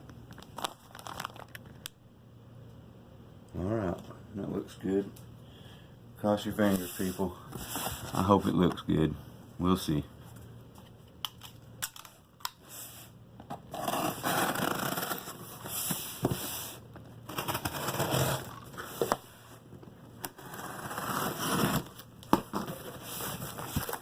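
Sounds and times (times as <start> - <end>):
packaging crinkling and scraping: 0.4 - 1.8, 13.6 - 19.3, 20.3 - 24.0.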